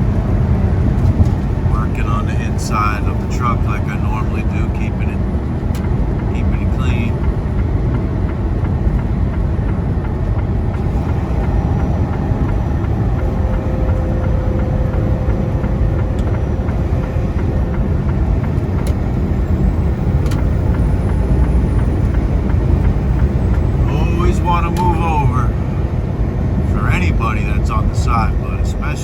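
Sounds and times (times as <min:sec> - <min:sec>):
truck engine and tyres rumbling: 0:00.0 - 0:29.0
faint steady hum: 0:10.2 - 0:29.0.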